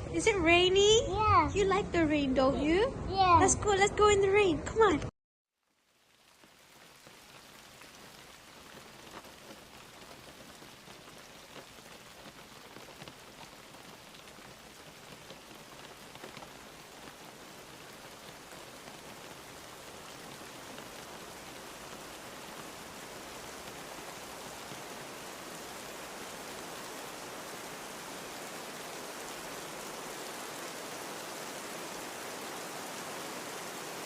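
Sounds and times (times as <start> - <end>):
rain pattering: 5.6 - 34.0.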